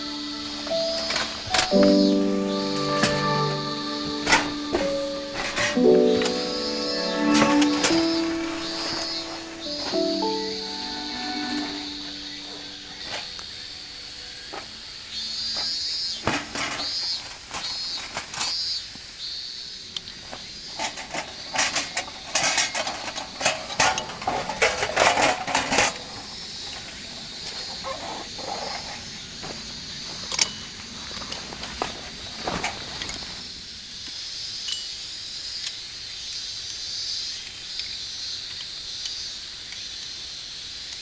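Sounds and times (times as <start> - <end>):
metal gear clinking and clattering: 4.2 - 6.4.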